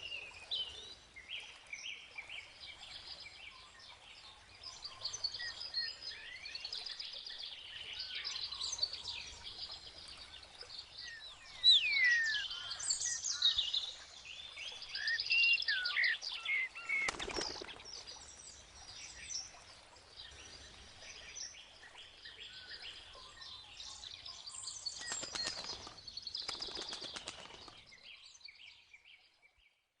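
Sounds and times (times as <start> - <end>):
songbirds chirping and whistling: 7.6 - 19.6.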